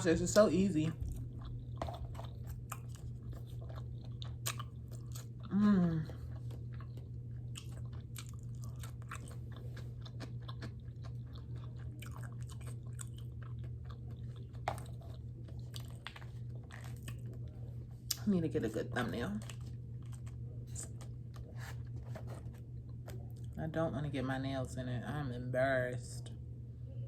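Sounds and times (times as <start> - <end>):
steady low hum: 0.0 - 27.0
chewing with wet mouth clicks: 0.3 - 5.5, 6.1 - 18.2, 19.4 - 21.5.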